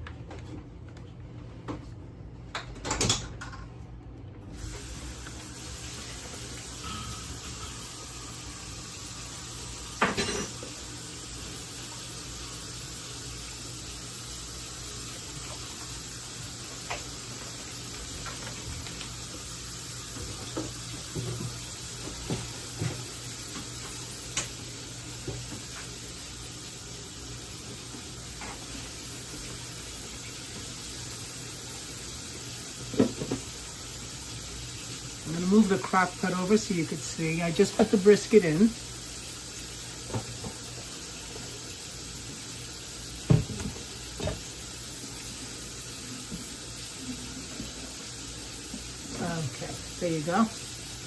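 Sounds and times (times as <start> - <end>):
kitchen knocks and clatter: 2.5 - 3.7, 43.3 - 44.5.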